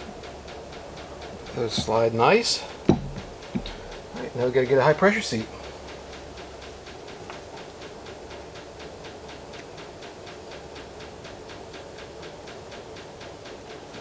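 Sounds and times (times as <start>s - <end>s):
low machine hum: 0.0s - 5.6s
rapid mechanical ticking: 0.0s - 13.8s.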